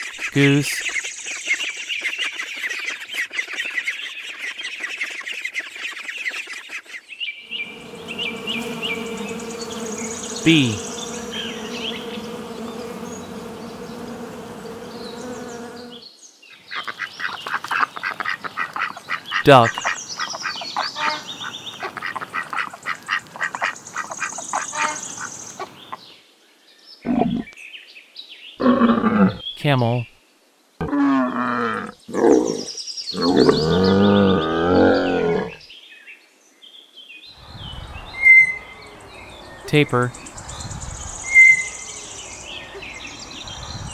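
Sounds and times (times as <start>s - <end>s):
bees buzzing: 7.5s - 16.1s, 37.5s - 43.9s
ducks and ducklings calling: 16.7s - 26.0s
camel groaning: 28.6s - 29.5s, 30.8s - 35.6s.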